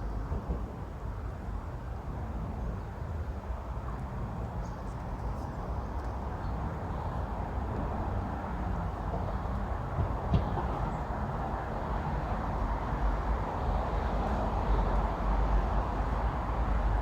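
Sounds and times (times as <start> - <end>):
low rumble of road traffic: 0.0 - 17.0.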